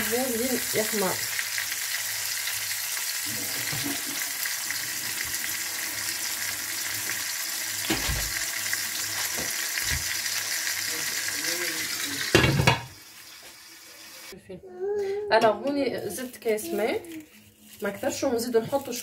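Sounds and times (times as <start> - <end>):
chicken sizzling in hot oil: 0.0 - 14.3.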